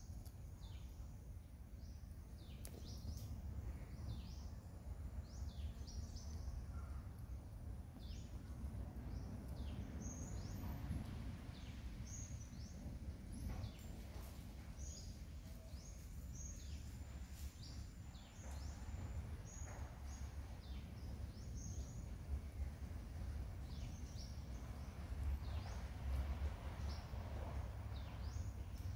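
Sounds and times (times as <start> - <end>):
small birds chirping: 0.0 - 28.9
steady low rumble: 0.0 - 28.9.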